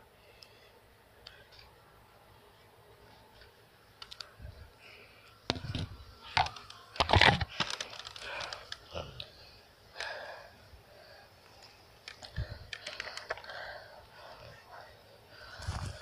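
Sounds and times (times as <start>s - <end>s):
rustling: 15.4s - 16.0s.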